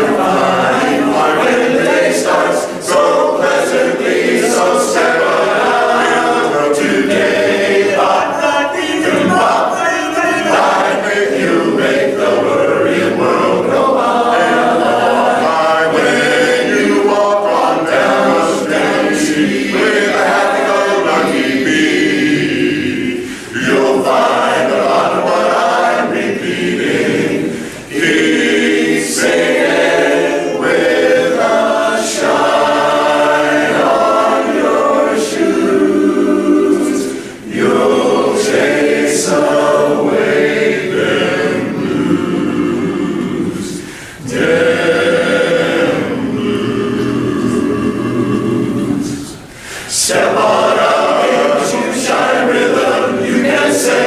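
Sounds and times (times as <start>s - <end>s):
male chorus singing a cappella: 0.0s - 54.0s
singers breathing: 23.2s - 23.6s, 27.5s - 27.9s, 37.1s - 37.5s, 43.7s - 44.3s, 49.4s - 50.0s.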